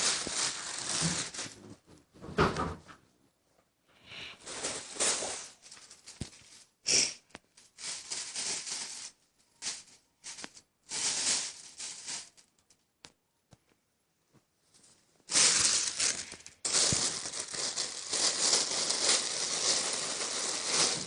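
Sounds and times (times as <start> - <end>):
plastic bag crinkling: 0.0 - 1.7, 4.4 - 6.7, 7.6 - 12.6, 15.3 - 21.0.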